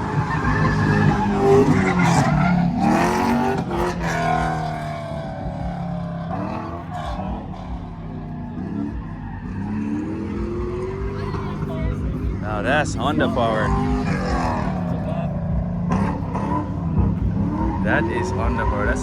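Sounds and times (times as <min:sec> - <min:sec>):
race car engine revving: 0:00.0 - 0:19.0.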